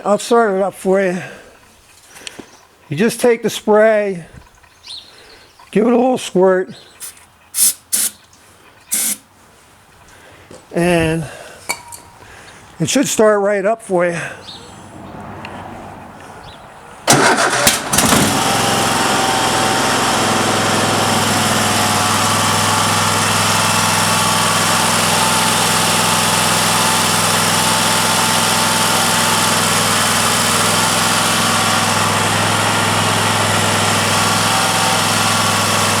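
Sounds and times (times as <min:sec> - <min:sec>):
mower engine cranking and running: 0:07.0 - 0:09.3, 0:17.0 - 0:36.0.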